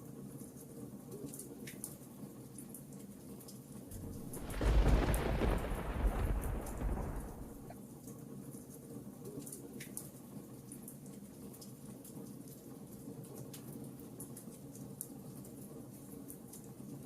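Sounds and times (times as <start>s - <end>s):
rain rushing: 3.9s - 7.8s
wood fire crackling and popping: 3.9s - 7.8s.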